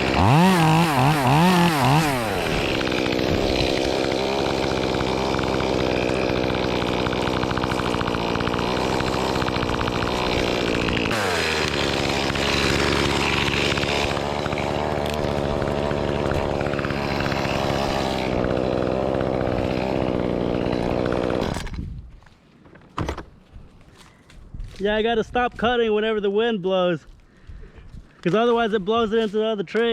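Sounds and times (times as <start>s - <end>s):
chainsaw running: 0.0s - 21.9s.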